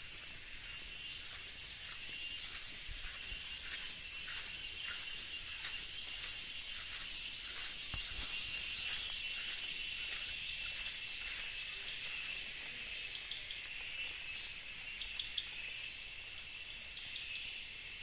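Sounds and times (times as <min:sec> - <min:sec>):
insects buzzing: 0:00.0 - 0:18.0.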